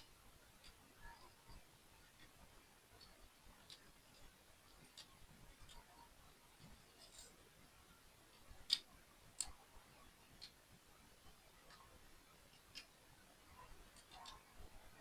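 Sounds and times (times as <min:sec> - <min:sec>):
plastic toy pieces clicking: 0:03.0 - 0:06.0, 0:08.3 - 0:09.6, 0:13.9 - 0:14.7.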